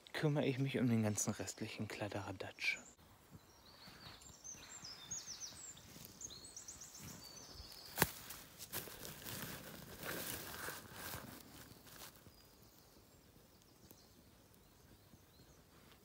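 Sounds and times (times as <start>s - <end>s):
songbird singing: 0.0s - 16.0s
rustling and handling noises: 7.0s - 12.3s.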